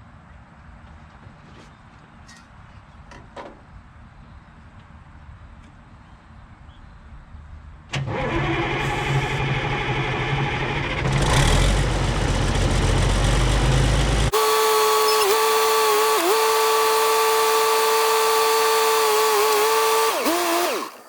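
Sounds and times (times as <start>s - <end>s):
diesel engine low rumble: 3.8s - 15.4s.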